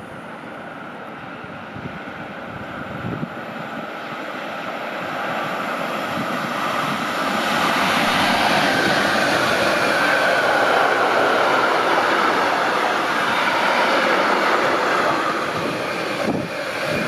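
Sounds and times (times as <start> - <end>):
train wheel-on-rail noise: 0.0 - 17.0.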